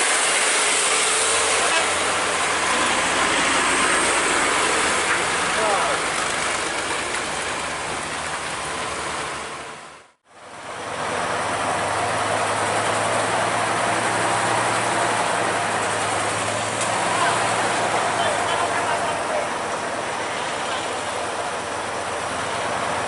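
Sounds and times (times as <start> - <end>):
loud rushing noise: 0.0 - 10.2
diesel truck engine running: 0.0 - 23.0.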